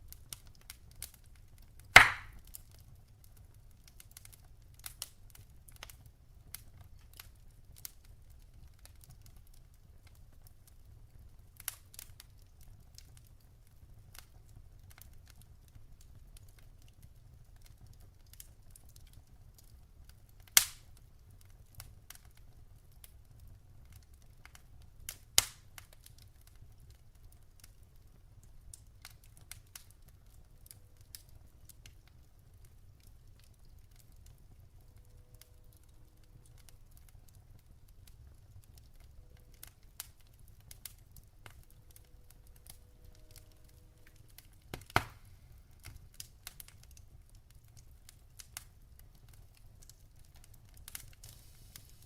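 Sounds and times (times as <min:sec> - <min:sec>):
wood fire crackling: 0:00.0 - 0:52.0
loud sharp pops: 0:02.0 - 0:02.4, 0:44.7 - 0:45.3.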